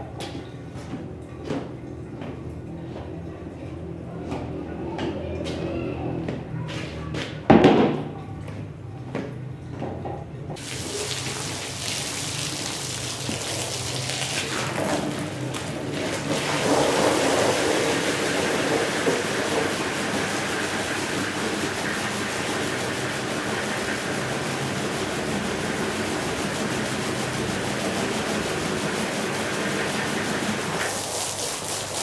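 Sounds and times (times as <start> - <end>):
water spray hissing: 10.6 - 32.0.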